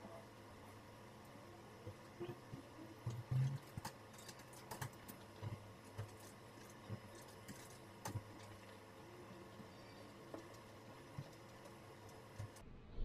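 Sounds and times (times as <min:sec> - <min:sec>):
kittens suckling clicks and smacks: 0:03.1 - 0:08.8.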